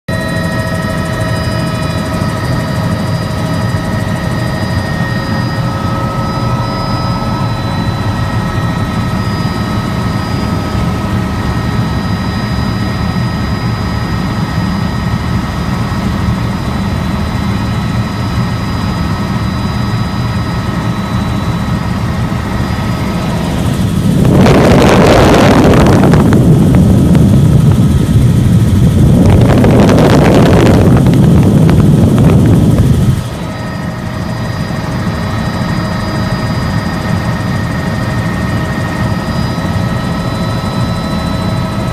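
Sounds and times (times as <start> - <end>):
helicopter rotor beat: 0.1 - 41.9
helicopter turbine whine: 0.1 - 41.9
rushing noise: 21.3 - 34.5.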